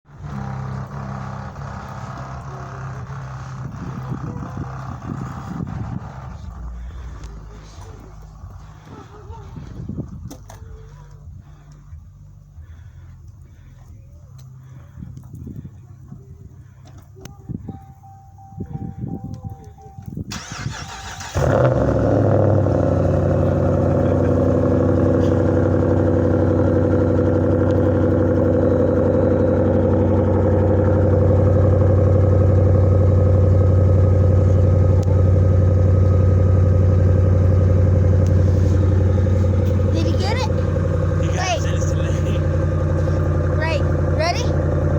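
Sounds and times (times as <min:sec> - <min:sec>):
pickup engine idling: 0:00.1 - 0:44.9
starter motor cranking: 0:20.3 - 0:22.1.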